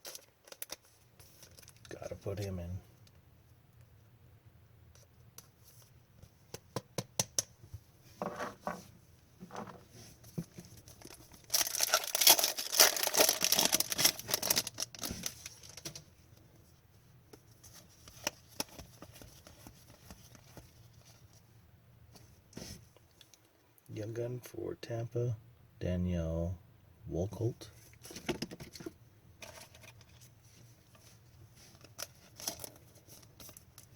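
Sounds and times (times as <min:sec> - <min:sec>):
wrapper tearing and crinkling: 0:10.9 - 0:16.0.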